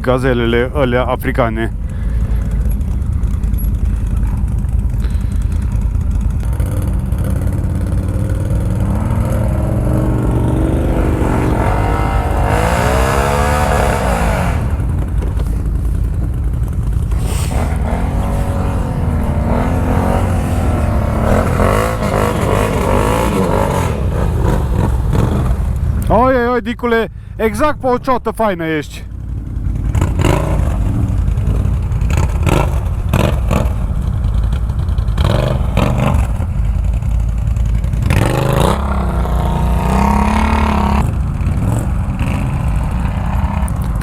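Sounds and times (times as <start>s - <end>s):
atv engine revving: 0.0s - 26.6s, 29.0s - 44.0s.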